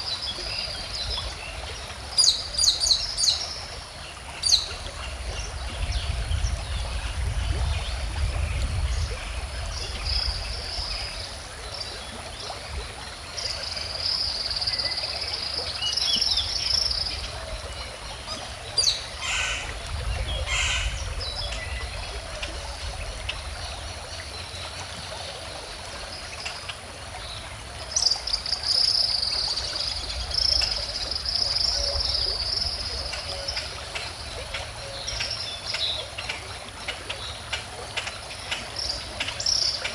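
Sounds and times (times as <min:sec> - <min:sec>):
stream water flowing: 0:00.0 - 0:39.9
birds singing: 0:18.8 - 0:22.2.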